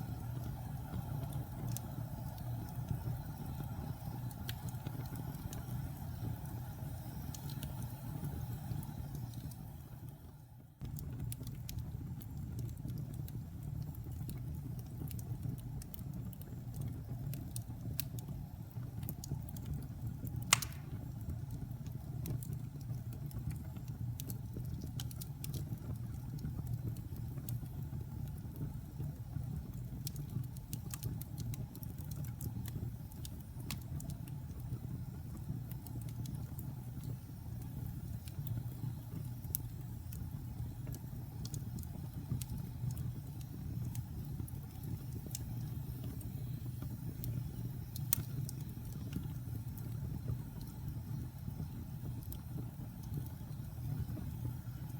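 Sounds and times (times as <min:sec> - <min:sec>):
fire flames rumbling: 0:00.0 - 0:10.2, 0:10.8 - 0:54.9
fire crackling: 0:00.0 - 0:54.9
loud fire pop: 0:20.5 - 0:21.1.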